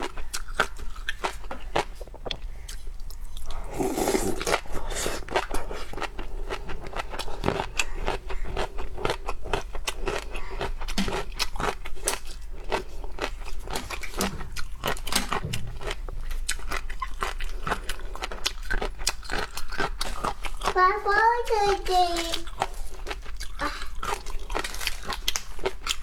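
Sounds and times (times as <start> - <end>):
crunching and chewing seafood: 0.0 - 26.0.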